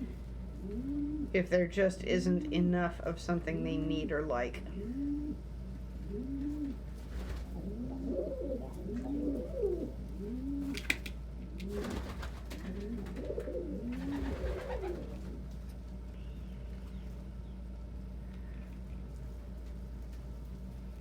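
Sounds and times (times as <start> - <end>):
pigeons cooing: 0.0 - 1.5, 4.7 - 15.6.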